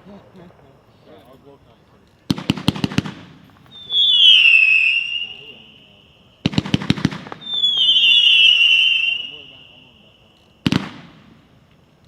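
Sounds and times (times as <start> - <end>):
firework sharp cracks: 2.0 - 11.9
firework whistle: 2.5 - 11.4.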